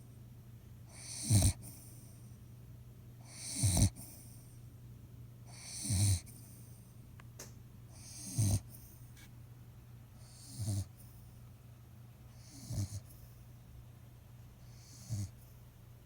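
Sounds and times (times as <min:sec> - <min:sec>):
dog snoring: 0:00.9 - 0:02.1, 0:03.2 - 0:04.4, 0:05.5 - 0:06.4, 0:07.9 - 0:08.9, 0:10.2 - 0:11.1, 0:12.3 - 0:13.2, 0:14.7 - 0:15.6.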